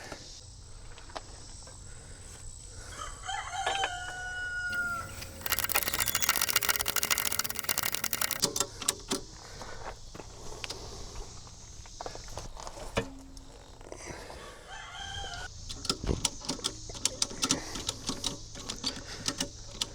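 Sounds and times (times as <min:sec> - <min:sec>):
rooster crowing: 0:03.0 - 0:05.1, 0:14.7 - 0:15.5
rapid clattering clicks: 0:04.7 - 0:08.5.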